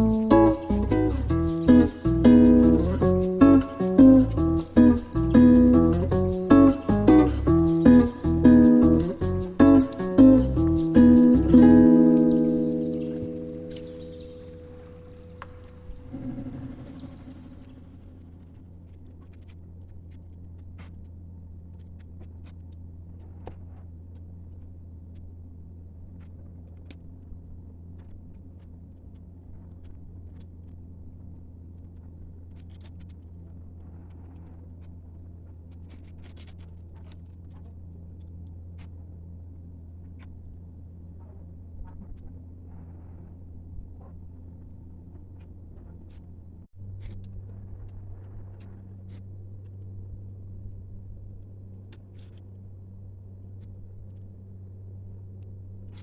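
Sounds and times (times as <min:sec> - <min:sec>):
low hum: 0:00.0 - 0:18.5.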